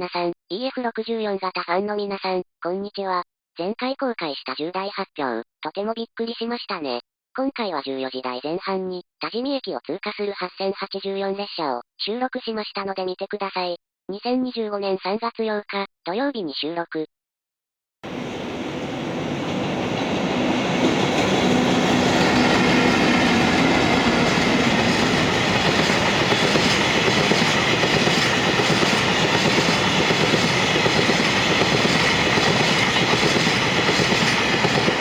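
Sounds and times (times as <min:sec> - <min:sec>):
train wheel and rail noise: 0:18.0 - 0:35.0.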